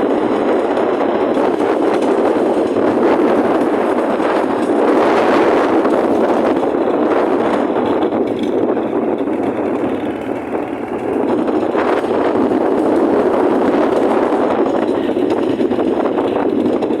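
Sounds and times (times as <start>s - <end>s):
motorcycle riding: 0.0s - 17.0s
wind rushing: 0.0s - 17.0s.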